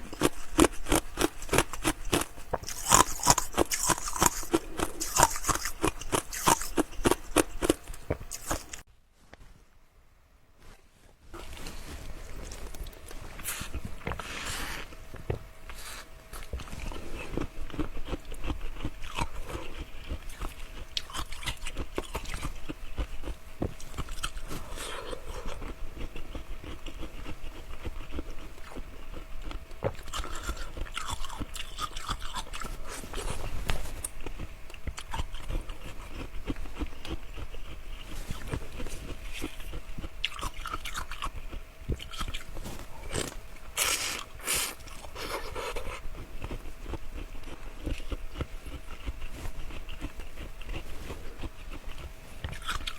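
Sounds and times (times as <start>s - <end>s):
person crunching ice: 0.0s - 8.8s.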